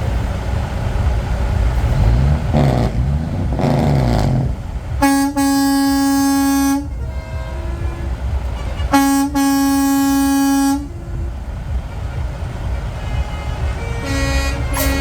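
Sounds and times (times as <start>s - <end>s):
truck engine: 0.0s - 15.0s
truck air horn blasts: 1.8s - 15.0s
faint horn note: 5.0s - 15.0s.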